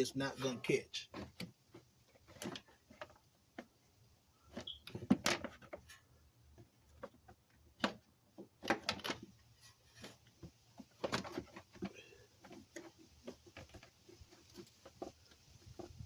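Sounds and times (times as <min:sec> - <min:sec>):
plastic panel clicks and knocks: 0:06.6 - 0:09.4.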